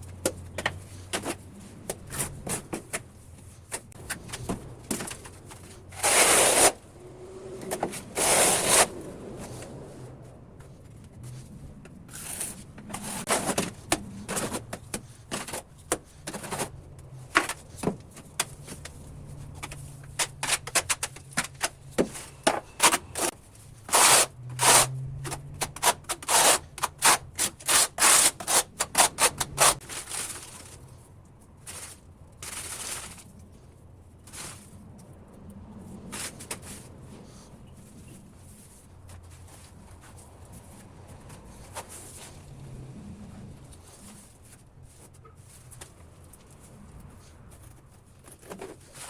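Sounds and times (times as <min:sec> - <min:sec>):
tool scraping strokes: 0:05.9 - 0:06.8, 0:07.6 - 0:09.7.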